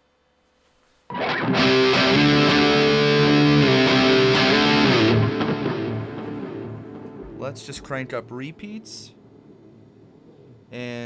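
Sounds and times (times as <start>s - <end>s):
distorted electric guitar riff: 1.1s - 9.0s.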